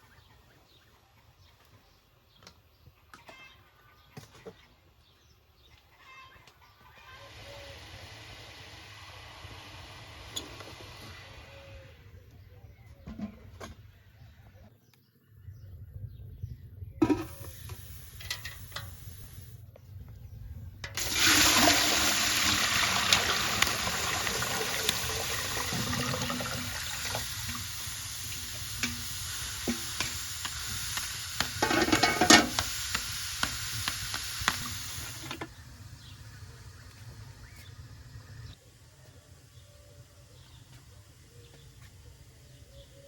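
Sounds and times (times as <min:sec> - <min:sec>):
water pouring in a stream: 0:21.0 - 0:35.4.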